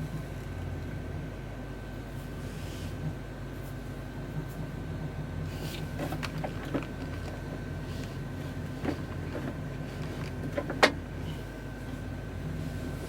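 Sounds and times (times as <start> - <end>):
faint whine: 0.0 - 13.0
steady low hum: 0.0 - 13.0
light clicks and knocks: 5.6 - 11.0.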